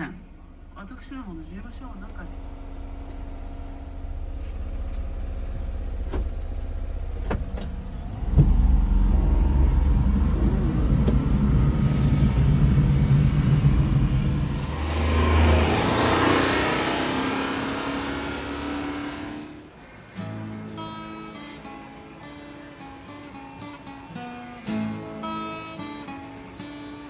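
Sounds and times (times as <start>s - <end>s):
small engine running: 0.0s - 27.0s
rushing noise: 7.4s - 20.2s.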